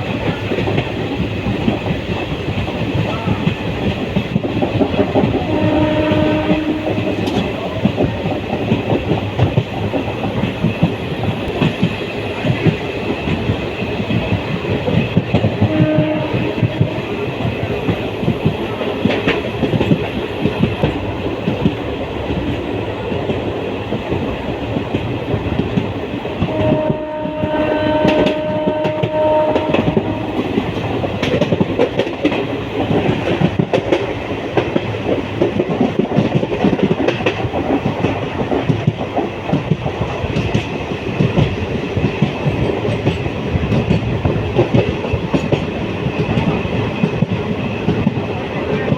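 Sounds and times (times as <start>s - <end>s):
train wheels clickety-clack: 0.0s - 48.9s
train horn: 5.2s - 7.6s, 15.4s - 17.5s, 26.4s - 30.8s.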